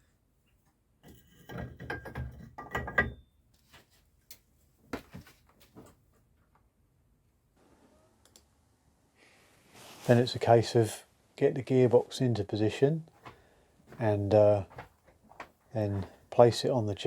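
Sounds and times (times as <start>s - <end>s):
tools knocking and clattering: 1.1s - 3.2s.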